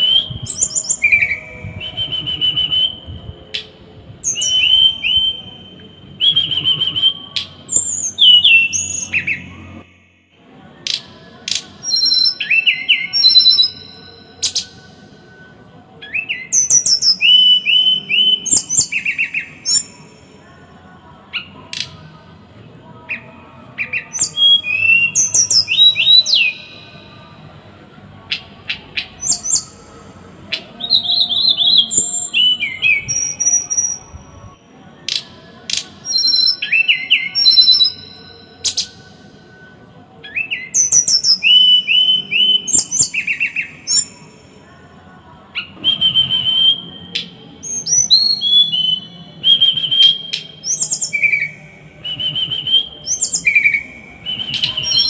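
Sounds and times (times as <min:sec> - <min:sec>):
songbird singing rapid trills: 0:00.0 - 0:09.6, 0:10.8 - 0:14.7, 0:23.1 - 0:26.8, 0:28.3 - 0:29.9, 0:35.1 - 0:39.0, 0:45.6 - 0:55.0.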